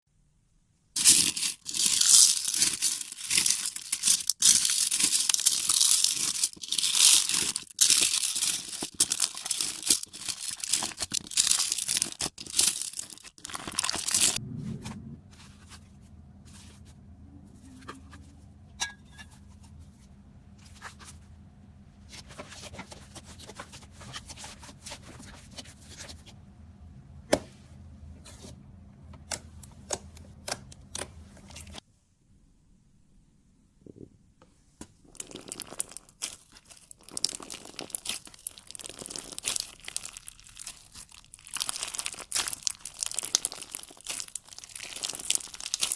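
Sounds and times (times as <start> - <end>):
loud crackling and crunching: 1.0 - 14.4, 35.1 - 45.9
faint low hum: 14.2 - 34.8.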